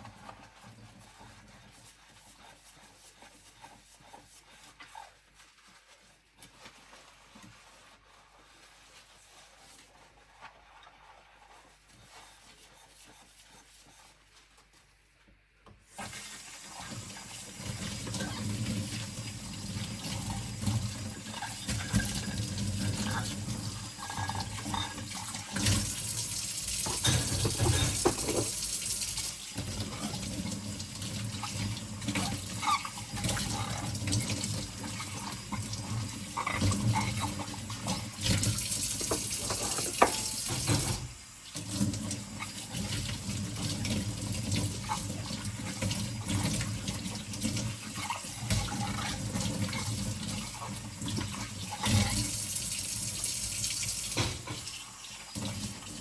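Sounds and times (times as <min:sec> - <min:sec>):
tap water running into sink: 0:15.9 - 0:56.0
ceramic bowls clinking: 0:26.9 - 0:28.6.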